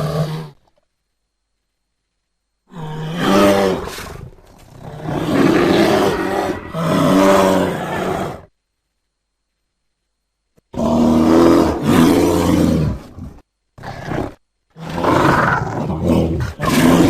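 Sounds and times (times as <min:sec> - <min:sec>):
bear rough calls: 0:02.7 - 0:08.5.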